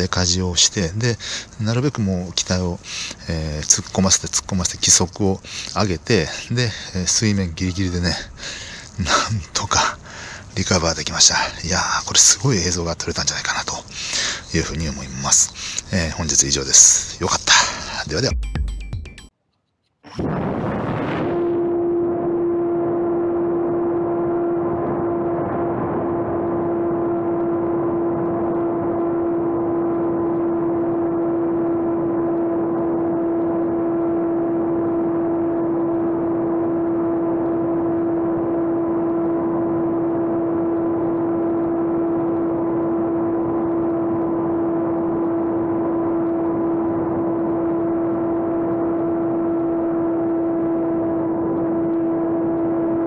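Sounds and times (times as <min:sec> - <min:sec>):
electric motor and propeller whine: 0:20.3 - 0:53.0.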